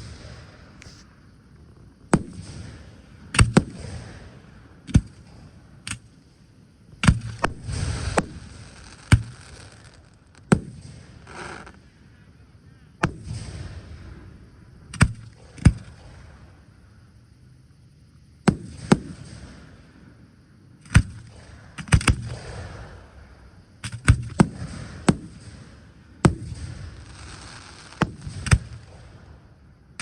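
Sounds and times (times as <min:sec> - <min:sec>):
fireworks crackling: 0:00.0 - 0:02.7, 0:07.2 - 0:11.8, 0:26.4 - 0:29.1
fireworks bursting: 0:00.0 - 0:04.2, 0:07.0 - 0:11.8, 0:26.3 - 0:29.3.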